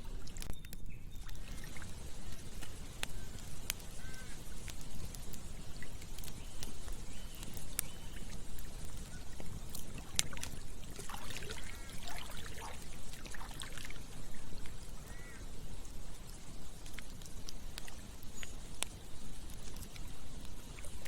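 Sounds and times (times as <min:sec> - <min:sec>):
campfire crackling and popping: 0:00.0 - 0:21.0
running water: 0:01.2 - 0:21.0
water gurgling and bubbling: 0:09.7 - 0:14.1.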